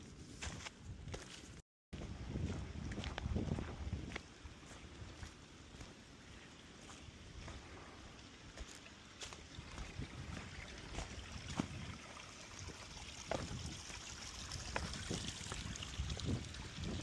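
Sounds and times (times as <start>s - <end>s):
water trickling: 4.6s - 17.0s.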